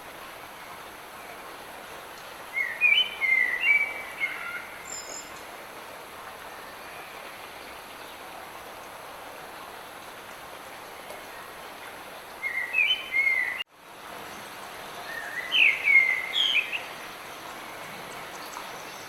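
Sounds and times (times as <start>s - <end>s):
light rain hissing: 0.0s - 19.0s
songbird singing: 2.5s - 5.5s, 12.3s - 13.7s, 15.0s - 19.0s
faint high chirp: 4.8s - 5.4s.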